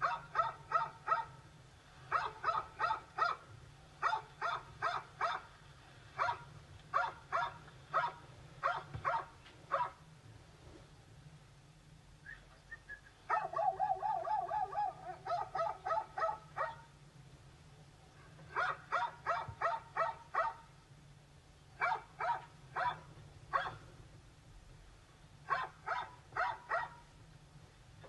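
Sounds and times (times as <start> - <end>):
dog yipping and barking: 0.0 - 1.4, 2.1 - 3.4, 4.0 - 5.5, 6.2 - 6.4, 7.0 - 10.0, 13.3 - 16.9, 18.5 - 20.6, 21.8 - 23.8, 25.5 - 27.0.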